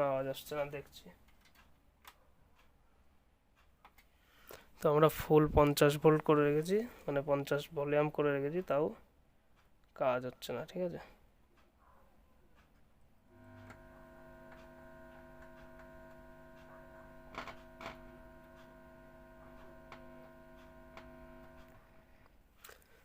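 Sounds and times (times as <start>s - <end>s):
clicks: 12.6s - 23.0s
faint mains hum from speaker: 13.2s - 23.0s.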